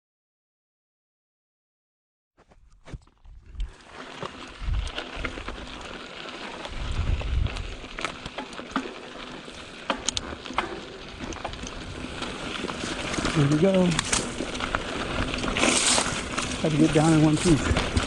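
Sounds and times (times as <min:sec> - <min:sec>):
bike tyres crunching over dirt: 0:02.4 - 0:18.0
gravel clicks: 0:02.4 - 0:18.0
wind rumble on microphone: 0:04.5 - 0:05.6, 0:06.7 - 0:08.1.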